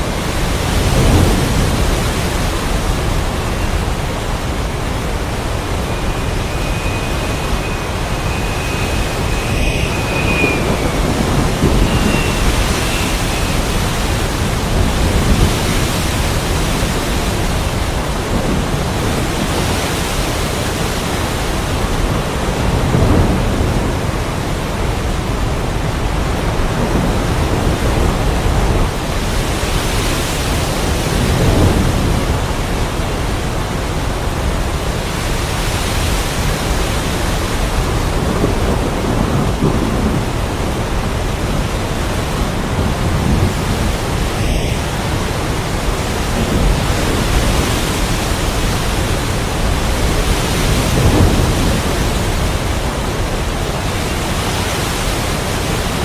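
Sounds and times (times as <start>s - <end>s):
low thunder rumbles: 0.0s - 29.5s, 36.4s - 54.3s
heavy rain: 0.0s - 56.0s
wind: 0.0s - 56.0s
thin high whistle: 4.8s - 14.8s.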